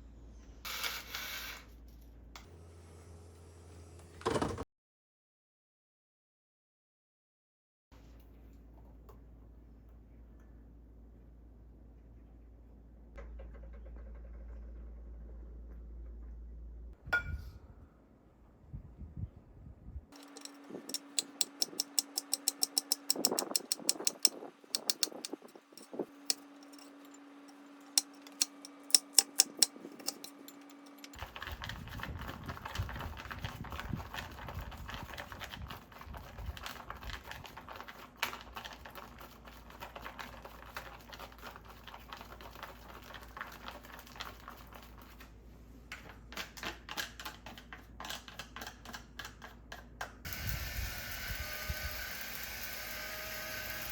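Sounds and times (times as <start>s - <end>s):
mechanical keyboard typing: 20.2s - 26.8s, 28.0s - 35.6s.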